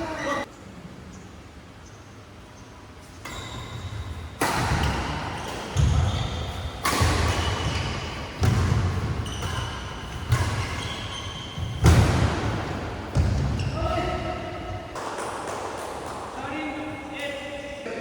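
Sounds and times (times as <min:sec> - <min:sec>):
shoes squeaking on court: 0:03.1 - 0:15.2
racket hitting shuttlecock: 0:03.3 - 0:16.4.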